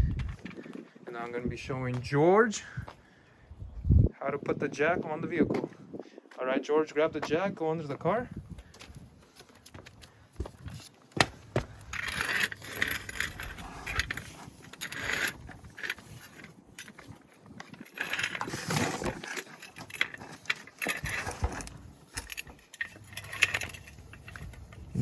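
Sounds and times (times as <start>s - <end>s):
metal scraping: 11.4s - 17.0s.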